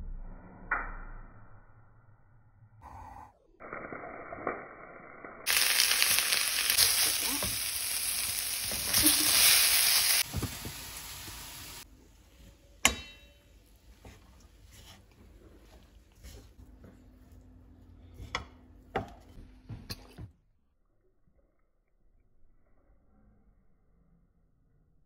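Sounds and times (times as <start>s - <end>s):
vegetables sizzling in a wok: 5.4s - 11.9s.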